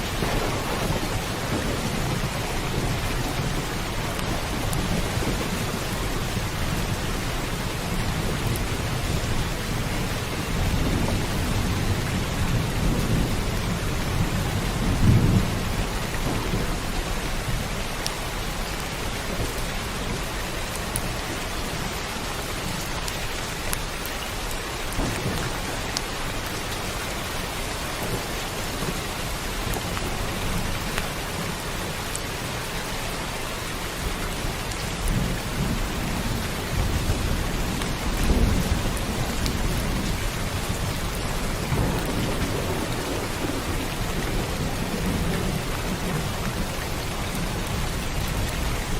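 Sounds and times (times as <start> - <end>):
sharp raindrop ticks: 0.0 - 14.4, 15.0 - 21.7, 22.3 - 32.3
rolling thunder: 0.0 - 18.4, 24.9 - 27.0, 34.1 - 48.9
heavy rain hissing: 0.0 - 48.9.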